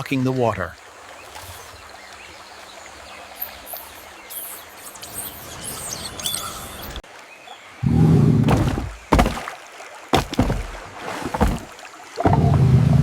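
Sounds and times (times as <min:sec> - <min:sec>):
birds chirping: 0:00.0 - 0:09.4
outdoor background hiss: 0:00.0 - 0:10.1.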